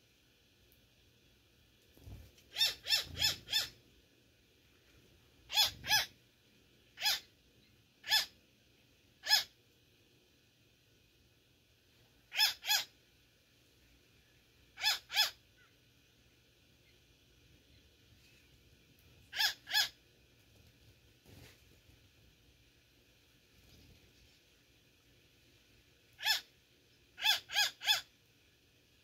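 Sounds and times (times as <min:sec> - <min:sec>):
bird harsh calls: 0:02.5 - 0:03.8, 0:05.5 - 0:06.1, 0:07.0 - 0:07.3, 0:08.0 - 0:08.3, 0:09.2 - 0:09.5, 0:12.3 - 0:12.9, 0:14.8 - 0:15.4, 0:19.3 - 0:20.0, 0:26.2 - 0:26.5, 0:27.2 - 0:28.1.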